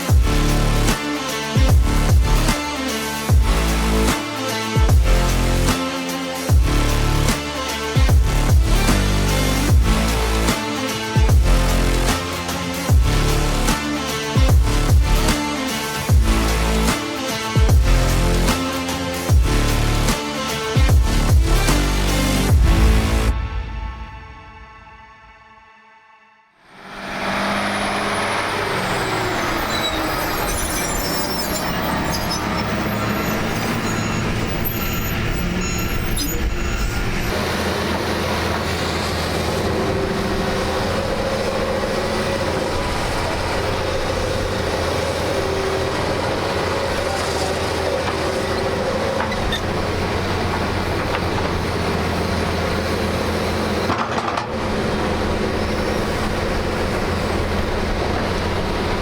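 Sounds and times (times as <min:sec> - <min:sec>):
diesel engine drone: 0:00.0 - 0:24.0, 0:26.7 - 0:59.0
tracks clanking and squealing: 0:27.0 - 0:59.0.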